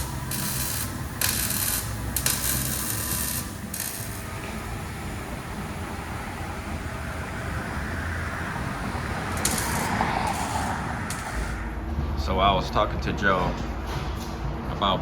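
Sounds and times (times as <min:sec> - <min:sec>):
motor vehicle rumble: 0:00.0 - 0:14.8.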